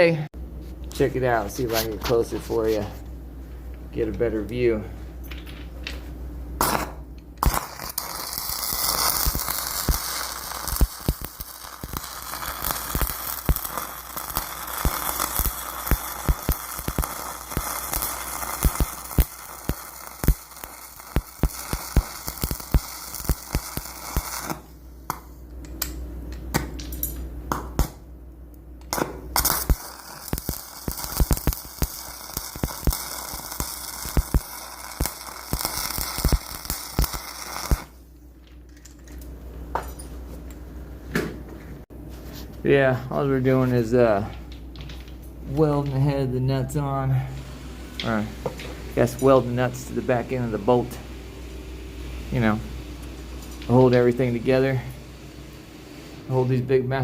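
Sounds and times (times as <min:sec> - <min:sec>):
arc welding crackle and pops: 0:06.6 - 0:28.1, 0:28.8 - 0:38.8, 0:47.9 - 0:51.0, 0:52.3 - 0:55.6.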